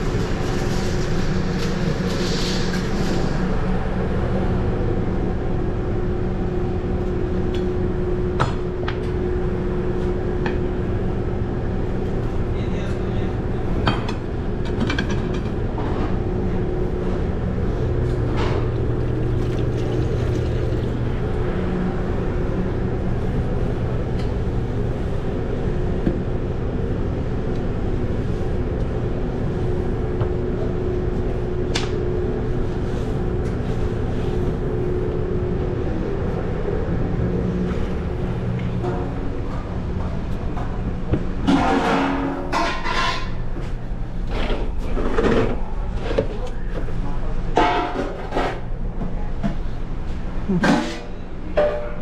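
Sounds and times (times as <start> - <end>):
kitchen equipment humming: 13.5 - 25.8.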